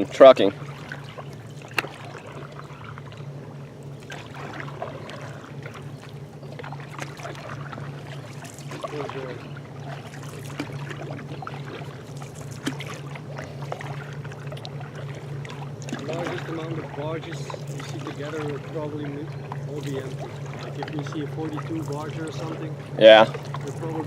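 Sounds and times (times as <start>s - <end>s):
water sounds: 0.0s - 24.0s
light knocks on canoe: 1.6s - 2.6s.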